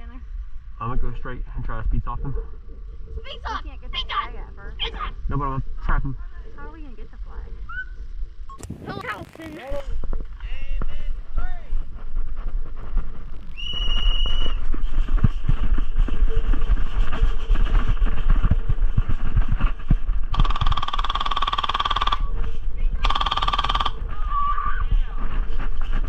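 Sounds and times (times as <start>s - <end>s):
wind rumble on microphone: 0.0s - 26.0s
running footfalls: 10.2s - 20.4s
airsoft gun firing full auto: 23.0s - 24.0s.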